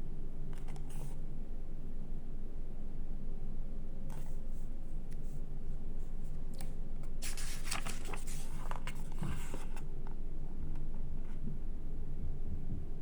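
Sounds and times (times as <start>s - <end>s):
steady low hum: 0.0s - 13.0s
magazine pages rustling: 7.2s - 9.8s.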